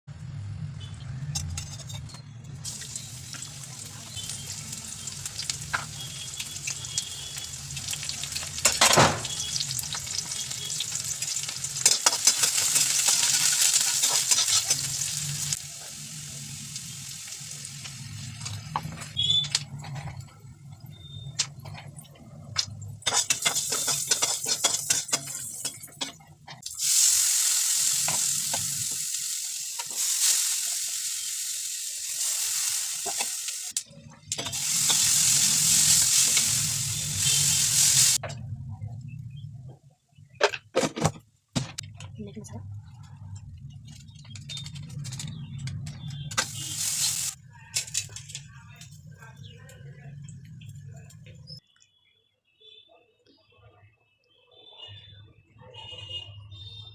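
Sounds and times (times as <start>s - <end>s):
food sizzling in hot oil: 2.6s - 20.2s, 20.8s - 38.2s, 44.0s - 48.8s.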